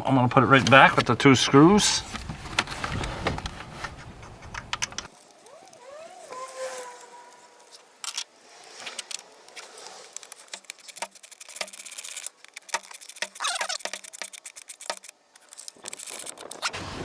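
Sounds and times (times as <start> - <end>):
evenly spaced ticks: 4.3 - 16.7
hand tools clicking and rattling: 8.9 - 16.8.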